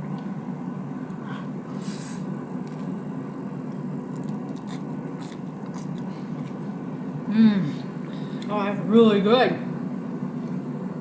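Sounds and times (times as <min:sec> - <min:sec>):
steady low hum: 0:00.0 - 0:11.0
chewing crackles: 0:02.6 - 0:07.2.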